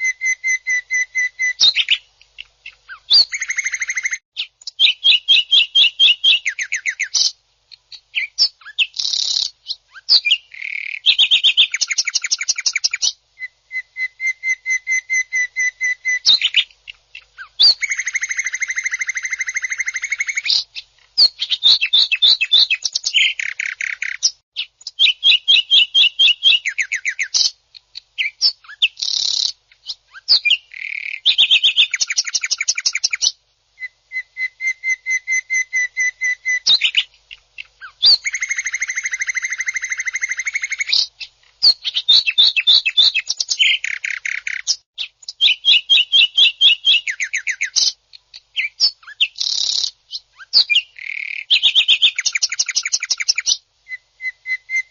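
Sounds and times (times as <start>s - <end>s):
bird singing harsh trills: 2.7s - 7.3s, 8.2s - 27.5s, 28.2s - 54.9s.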